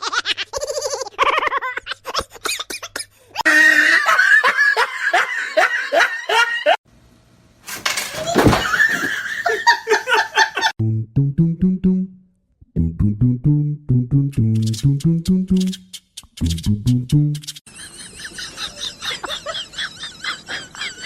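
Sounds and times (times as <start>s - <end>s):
people laughing hard: 0.0s - 6.8s, 8.4s - 10.8s, 17.7s - 21.0s.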